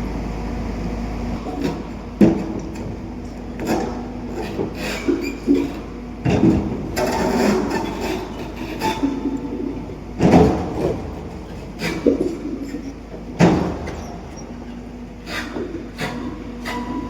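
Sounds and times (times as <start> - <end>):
excavator running: 0.0 - 17.0
heavy clunks and knocks: 1.6 - 14.8.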